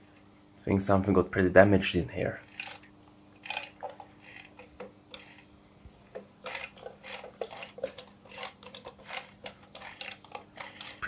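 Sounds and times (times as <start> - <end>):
sewing machine parts clattering: 2.4 - 5.5, 6.2 - 11.0.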